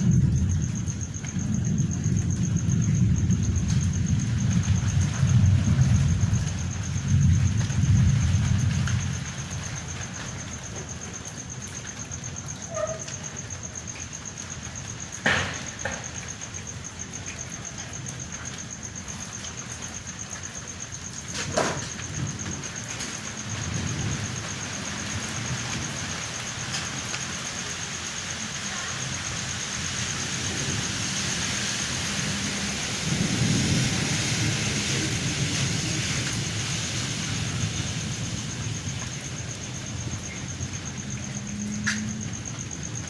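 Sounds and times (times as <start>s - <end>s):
steady rain: 0.0s - 43.0s
thunder rumbling: 0.0s - 43.0s
sharp thunder crack: 32.0s - 40.2s.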